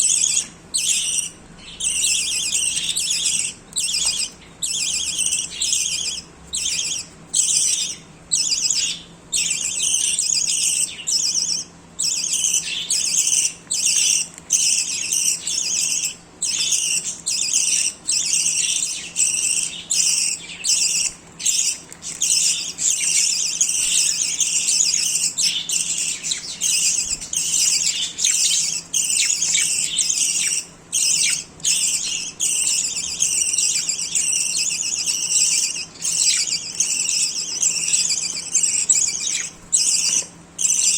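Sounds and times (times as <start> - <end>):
budgerigars chattering: 0.0 - 40.9.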